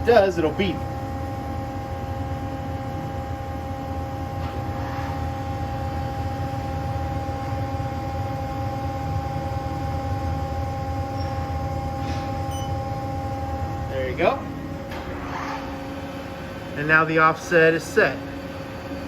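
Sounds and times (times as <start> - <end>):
lathe humming: 5.5 - 19.0.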